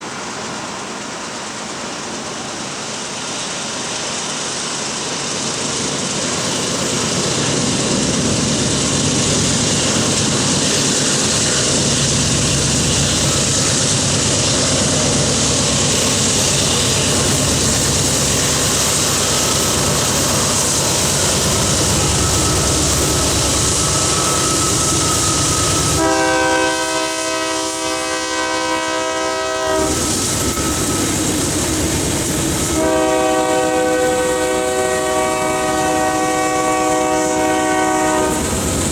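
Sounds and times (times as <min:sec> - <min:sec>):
diesel locomotives running: 0:00.0 - 0:38.9
locomotive air horn: 0:21.4 - 0:31.1, 0:32.7 - 0:38.6.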